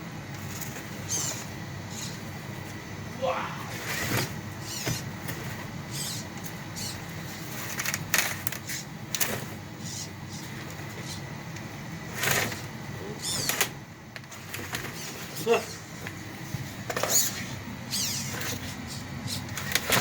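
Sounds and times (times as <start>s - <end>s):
toy car motor whining: 1.0s - 2.2s, 3.9s - 5.0s, 17.0s - 20.0s.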